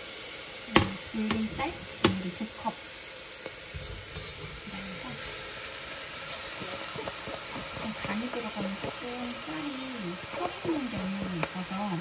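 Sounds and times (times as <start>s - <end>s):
mushrooms sizzling in oil: 0.0s - 12.0s
utensil clicking against pot: 0.7s - 2.4s, 6.9s - 9.4s, 10.2s - 11.6s.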